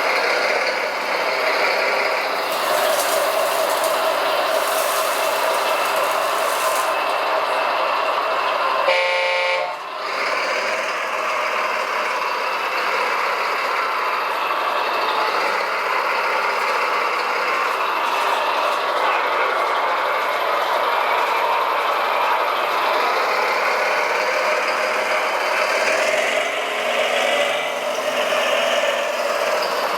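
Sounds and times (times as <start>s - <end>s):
toy truck motor whirring: 0.4s - 7.7s
short horn toot: 8.9s - 9.8s.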